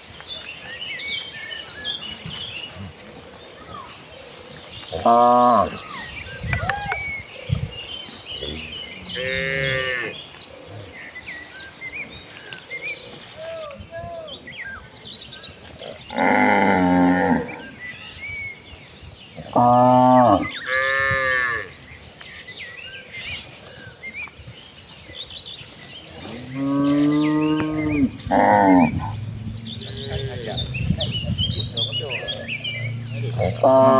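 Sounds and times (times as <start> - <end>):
cattle mooing: 8.5 - 10.2, 15.8 - 17.7, 19.4 - 21.7, 26.2 - 30.7, 33.1 - 33.9.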